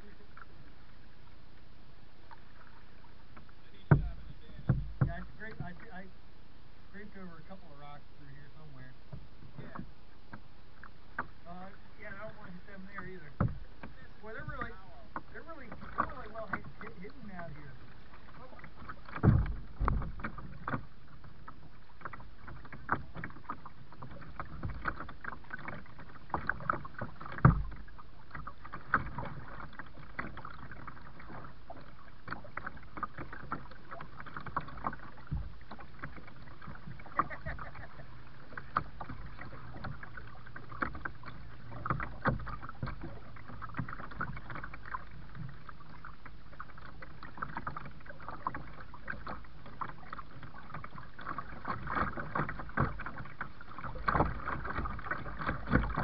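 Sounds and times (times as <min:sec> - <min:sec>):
water sloshing: 0:00.0 - 0:56.0
knocks on kayak hull: 0:03.9 - 0:05.7, 0:13.4 - 0:14.8, 0:18.7 - 0:20.9, 0:22.0 - 0:27.9.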